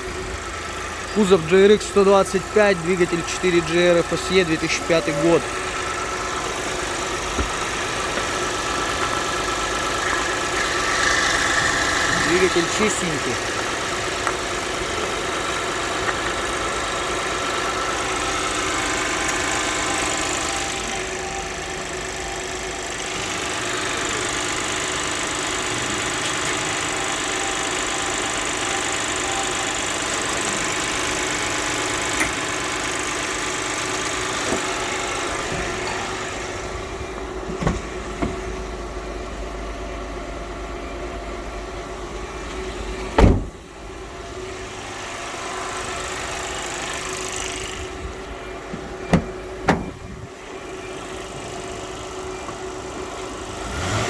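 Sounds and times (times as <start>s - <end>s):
car engine idling: 0.0s - 54.0s
loud thump: 43.2s - 43.6s.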